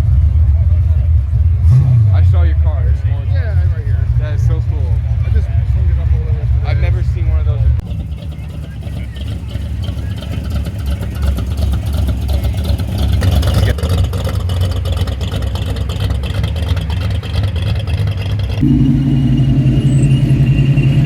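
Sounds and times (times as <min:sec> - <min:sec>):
car engines rumbling: 0:00.0 - 0:21.0
louder steady engine note: 0:14.2 - 0:21.0.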